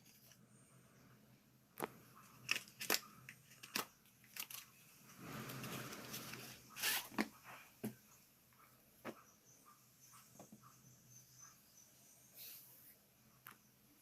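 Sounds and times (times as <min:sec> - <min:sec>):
packaging clicks and crinkles: 0:02.3 - 0:04.8.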